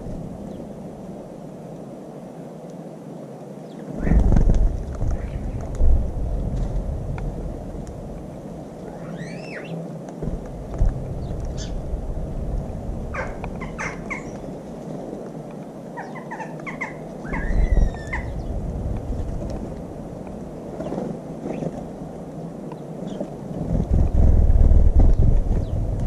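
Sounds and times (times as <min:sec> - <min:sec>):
steady low rumble: 0:03.9 - 0:09.3, 0:10.0 - 0:15.7, 0:16.6 - 0:22.6, 0:23.2 - 0:26.0
small birds chirping and whistling: 0:08.8 - 0:09.8, 0:11.2 - 0:11.8, 0:13.2 - 0:14.6, 0:16.0 - 0:18.6
low thump: 0:10.2 - 0:11.9.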